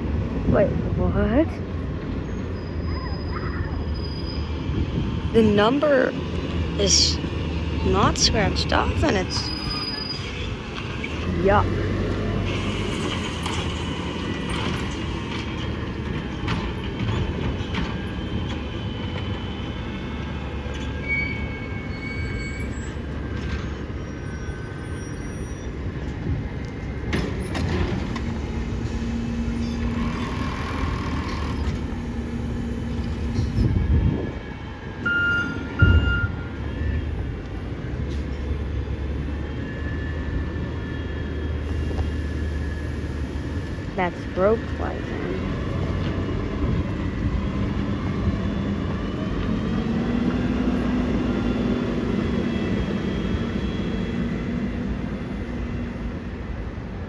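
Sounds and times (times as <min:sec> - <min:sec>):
truck engine rumble: 0:00.0 - 0:21.6, 0:25.7 - 0:56.5
high thin brake squeals: 0:02.2 - 0:05.1, 0:09.2 - 0:10.6, 0:20.8 - 0:25.8
short beeps: 0:35.0 - 0:36.5.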